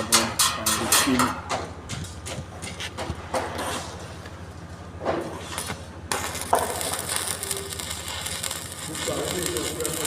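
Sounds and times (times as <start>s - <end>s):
low machine hum: 0.0s - 10.0s
arc welding crackling hiss: 5.5s - 10.0s.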